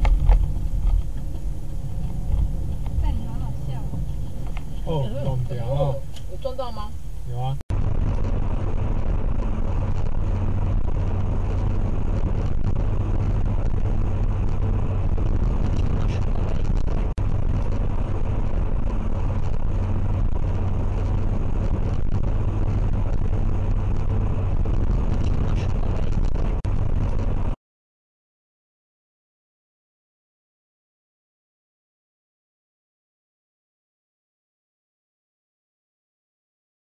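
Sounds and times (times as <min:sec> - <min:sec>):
car driving rumble: 0:00.0 - 0:27.6.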